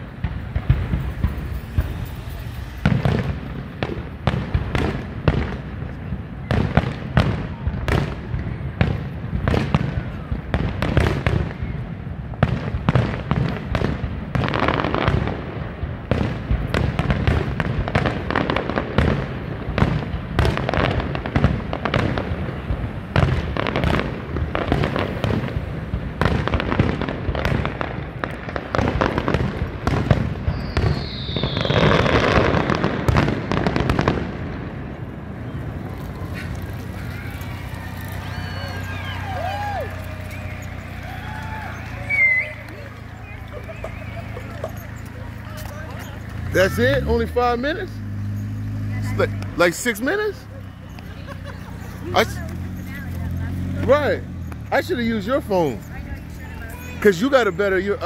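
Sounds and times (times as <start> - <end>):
fireworks booming and crackling: 0.0 - 58.0
falling firework whistle: 28.9 - 34.3, 35.3 - 45.2, 50.3 - 51.2.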